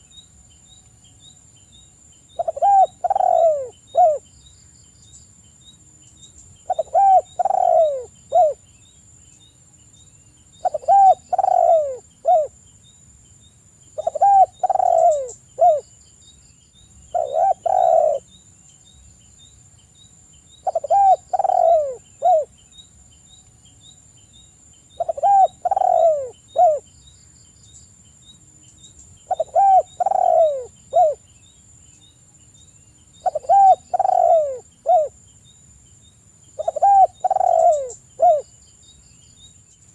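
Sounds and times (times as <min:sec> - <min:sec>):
dove cooing: 0:02.4 - 0:04.2, 0:06.7 - 0:08.6, 0:10.6 - 0:12.6, 0:14.0 - 0:15.8, 0:17.1 - 0:18.3, 0:20.6 - 0:22.5, 0:25.0 - 0:26.9, 0:29.3 - 0:31.2, 0:33.2 - 0:35.2, 0:36.6 - 0:38.5.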